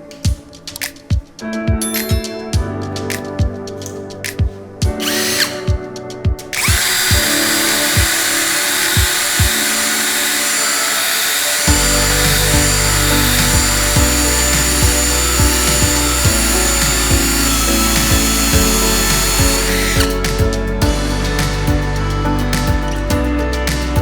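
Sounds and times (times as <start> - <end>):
background music with beat: 0.0 - 24.0
power tool whining: 5.0 - 5.7, 6.6 - 20.5
bass line: 11.7 - 24.0.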